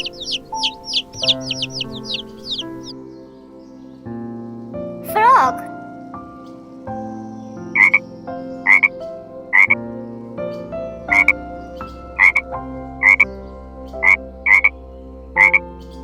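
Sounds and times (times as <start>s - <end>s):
frog croaking: 0.0s - 3.0s, 7.8s - 9.8s, 11.1s - 11.4s, 12.2s - 12.4s, 13.0s - 13.3s, 14.0s - 14.7s, 15.4s - 15.7s.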